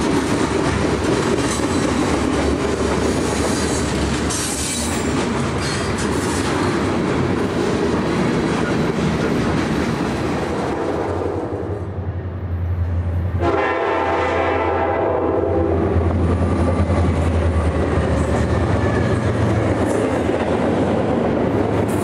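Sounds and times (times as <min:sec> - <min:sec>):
freight train wheels clattering on rails: 0:00.0 - 0:11.4, 0:15.8 - 0:22.0
train air horn: 0:13.3 - 0:16.0.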